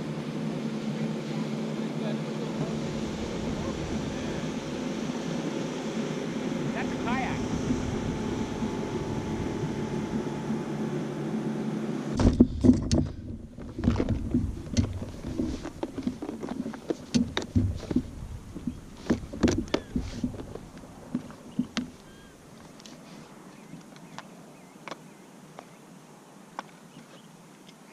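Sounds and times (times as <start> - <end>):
steady motor hum: 0.0 - 22.6
knocks and taps on a kayak: 12.2 - 22.0.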